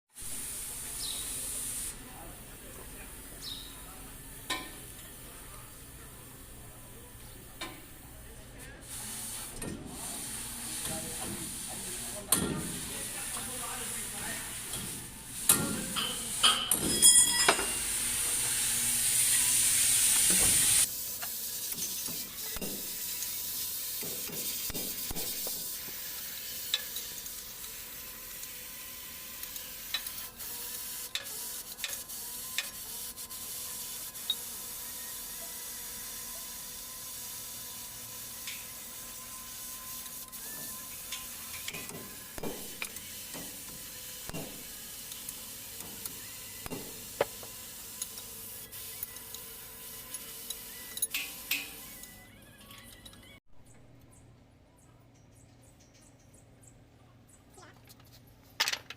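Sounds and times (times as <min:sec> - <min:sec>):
loud steady hiss: 0:00.2 - 0:06.6, 0:09.0 - 0:30.0.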